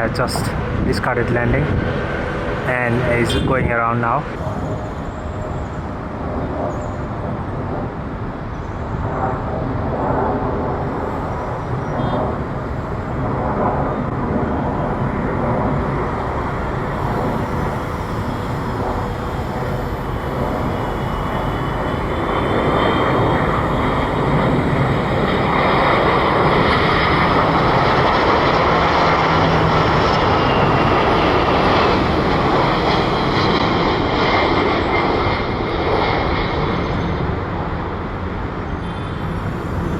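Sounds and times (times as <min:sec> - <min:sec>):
high engine whine: 0:00.0 - 0:39.9
jet engine roar: 0:00.0 - 0:39.9.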